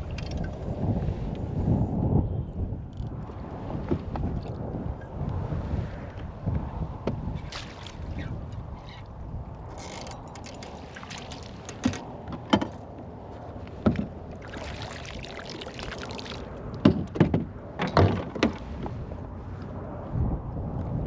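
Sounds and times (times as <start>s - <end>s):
wind and water rushing: 3.0s - 21.0s
knocks against kayak hull: 16.8s - 18.6s.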